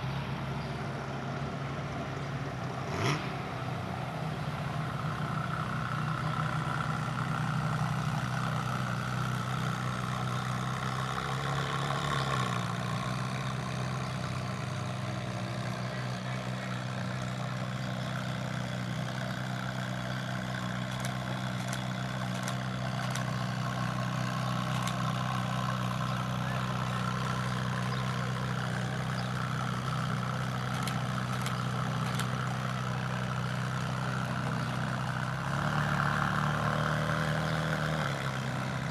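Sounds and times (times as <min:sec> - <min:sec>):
car engine idling: 0:03.4 - 0:38.9
faint sharp clicks: 0:20.9 - 0:23.3, 0:24.6 - 0:25.0, 0:30.7 - 0:32.4.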